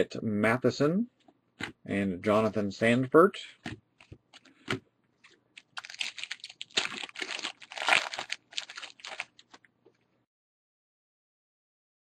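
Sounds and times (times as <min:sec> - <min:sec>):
wrapper crinkling and tearing: 0:04.4 - 0:09.7.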